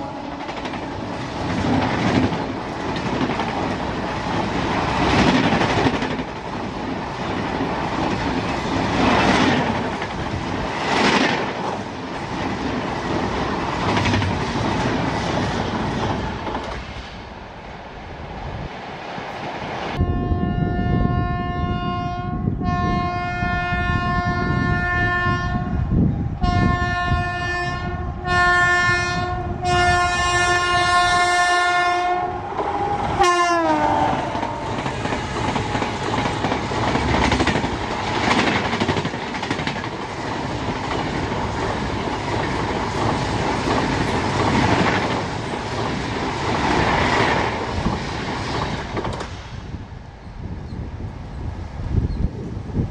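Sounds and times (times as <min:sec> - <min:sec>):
train horn blasts: 0:00.0 - 0:00.6, 0:20.0 - 0:25.8, 0:26.4 - 0:34.9
train wheels rumbling and clattering: 0:00.0 - 0:17.4, 0:28.2 - 0:52.9.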